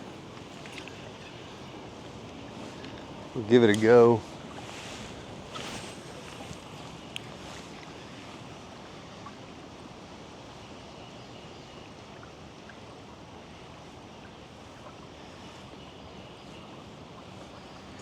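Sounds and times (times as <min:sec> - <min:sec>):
water flowing in a creek: 0:00.0 - 0:18.0
wind: 0:00.0 - 0:18.0
faint ticks: 0:02.0 - 0:04.0, 0:06.3 - 0:08.0.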